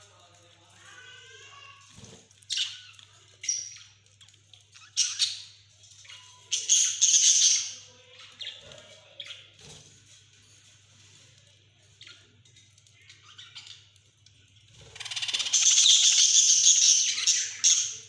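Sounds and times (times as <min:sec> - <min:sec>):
budgerigars squawking and chirping: 0:06.2 - 0:07.9, 0:14.9 - 0:18.0.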